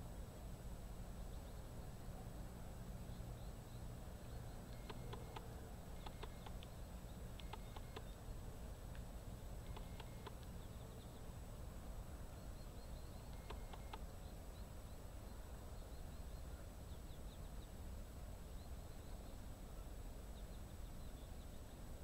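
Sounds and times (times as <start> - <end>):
low steady rumble: 0.0 - 22.0
faint high bird chirps: 3.0 - 8.3, 9.6 - 11.4, 12.3 - 17.8
soft clicks: 4.7 - 8.1, 8.9 - 10.6, 13.3 - 14.1.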